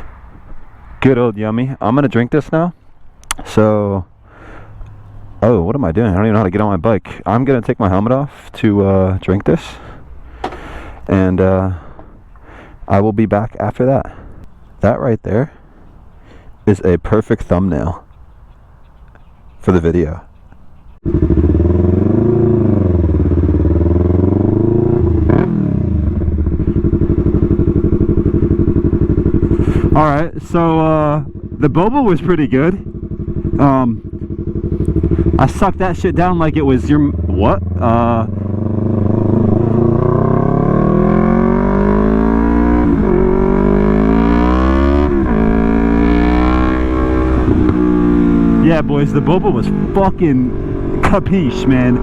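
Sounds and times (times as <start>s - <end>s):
sharp click: 3.2s - 3.5s
motorcycle engine running: 21.0s - 52.0s.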